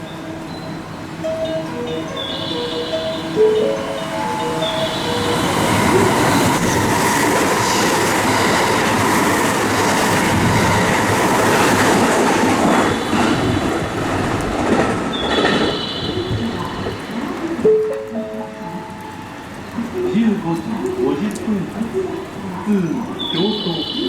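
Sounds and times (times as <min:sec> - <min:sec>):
train wheels rumbling over rail joints: 0:01.4 - 0:17.9.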